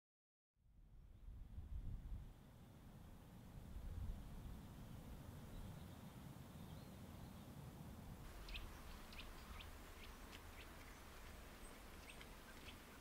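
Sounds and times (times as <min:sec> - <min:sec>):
small birds chirping: 0:08.2 - 0:13.0.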